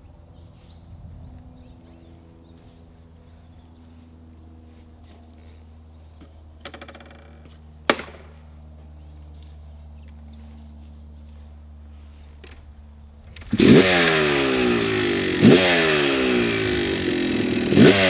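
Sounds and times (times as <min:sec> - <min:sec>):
two-stroke engine idling: 0:13.3 - 0:18.0.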